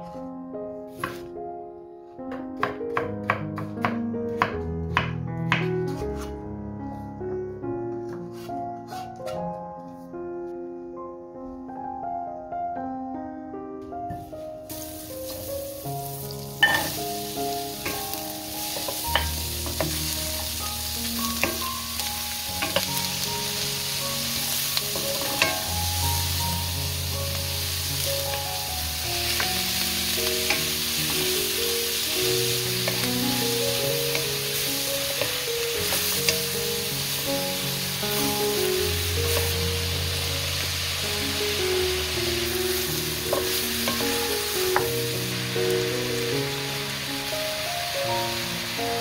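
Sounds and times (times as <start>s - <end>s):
soft background music: 0.0s - 49.0s
food sizzling in a wok: 14.7s - 49.0s
wooden spoon knocking on pan: 18.7s - 20.1s, 21.4s - 21.7s.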